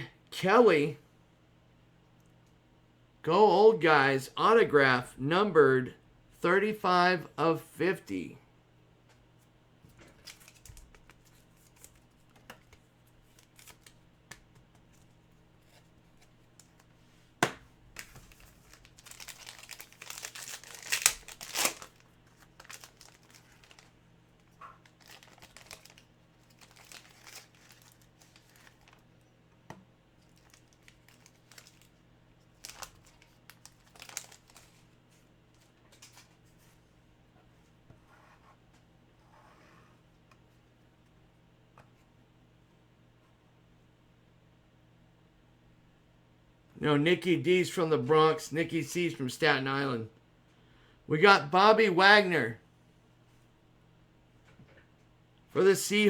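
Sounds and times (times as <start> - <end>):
card packaging tearing and crinkling: 10.2 - 12.2, 13.2 - 14.0, 18.0 - 29.0, 30.2 - 31.9, 32.5 - 34.8.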